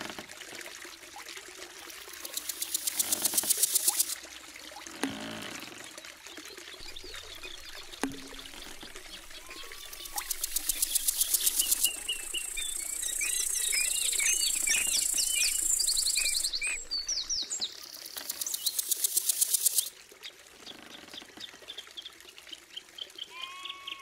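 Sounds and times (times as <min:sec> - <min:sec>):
rapid high bird trill: 0:02.1 - 0:04.2, 0:06.8 - 0:17.5
birds chirping and whistling: 0:06.8 - 0:19.5.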